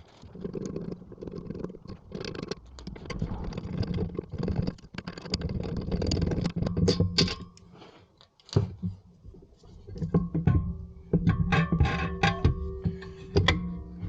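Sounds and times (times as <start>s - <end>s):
hand tools and metal parts clicking: 2.2s - 8.6s.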